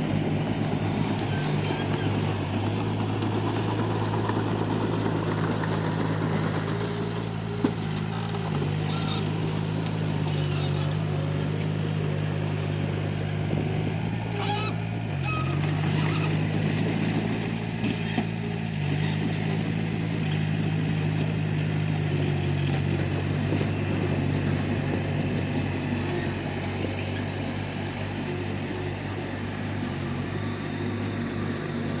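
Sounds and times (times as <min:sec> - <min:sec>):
bulldozer diesel engine running: 0:00.0 - 0:32.0.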